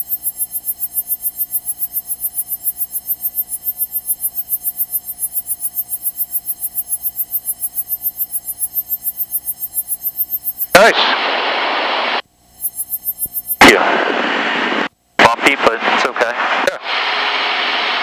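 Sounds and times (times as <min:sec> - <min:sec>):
propeller plane engine drone: 0:00.0 - 0:18.0.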